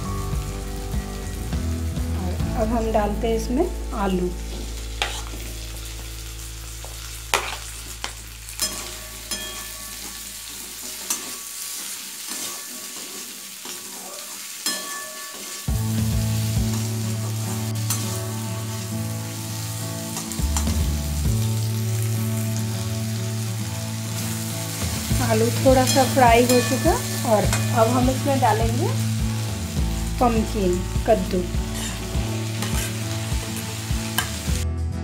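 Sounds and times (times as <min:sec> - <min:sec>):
potatoes sizzling in oil: 0:00.0 - 0:34.6
metal spatula scraping pan: 0:05.0 - 0:05.6, 0:07.3 - 0:07.8, 0:08.6 - 0:15.7, 0:31.6 - 0:33.2.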